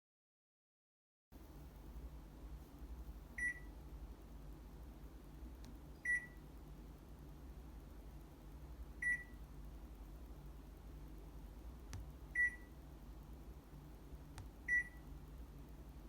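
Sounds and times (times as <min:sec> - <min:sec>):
low steady hum: 0:01.4 - 0:16.0
washer control panel beeping: 0:03.4 - 0:03.7, 0:12.4 - 0:12.6, 0:14.7 - 0:15.0.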